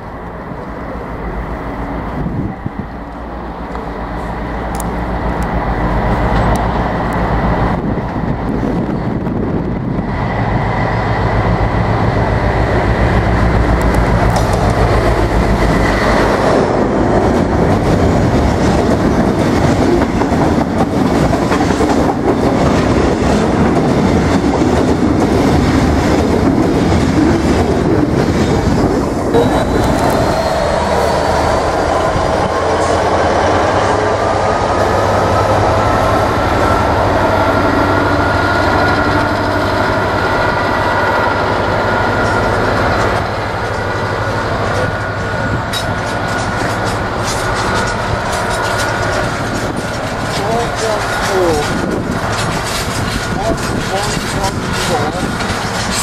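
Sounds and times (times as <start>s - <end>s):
diesel locomotive engine running: 0.0s - 56.0s
locomotive whine rising in pitch: 29.2s - 50.2s
freight wagons clattering over rail joints: 42.2s - 56.0s.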